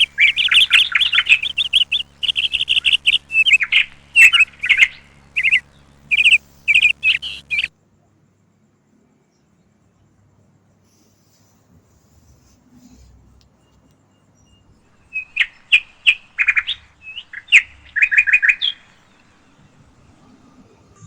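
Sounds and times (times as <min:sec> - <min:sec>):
bird chirping: 0:00.0 - 0:07.7, 0:13.6 - 0:20.6.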